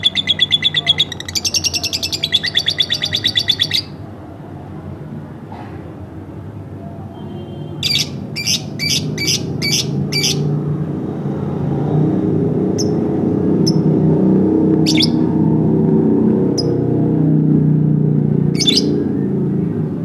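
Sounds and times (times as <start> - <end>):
lovebird chirping: 0.0 - 4.0, 7.4 - 10.5, 12.8 - 13.0, 13.6 - 13.9, 14.8 - 15.2, 18.5 - 19.0.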